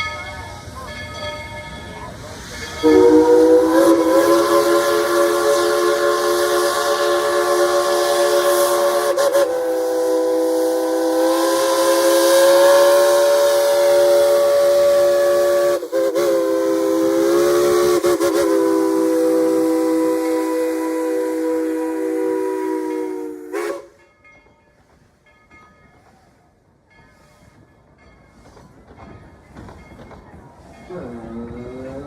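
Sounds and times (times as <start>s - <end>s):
steam locomotive chime whistle: 0.0s - 26.5s
steam hissing: 0.4s - 24.0s.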